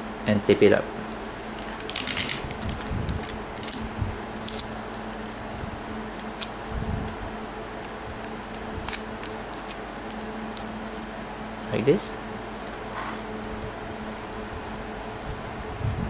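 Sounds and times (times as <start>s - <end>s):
tape tearing rasps: 1.5s - 5.3s, 6.1s - 6.7s, 7.7s - 11.0s
tape pulled off and pressed down: 1.6s - 5.3s.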